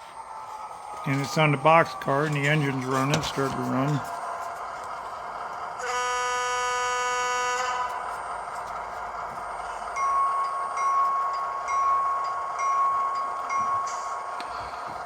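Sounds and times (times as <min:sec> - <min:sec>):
diesel locomotive engine idling: 0:00.0 - 0:15.0
locomotive bell ringing: 0:00.4 - 0:04.4, 0:05.8 - 0:15.0
locomotive horn blast: 0:05.8 - 0:08.4.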